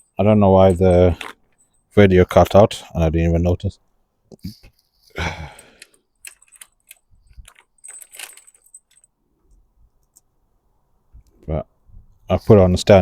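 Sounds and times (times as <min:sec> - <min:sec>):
small metal parts clinking: 0:00.0 - 0:02.5, 0:04.4 - 0:10.3, 0:12.2 - 0:13.0
rustle: 0:04.3 - 0:10.4.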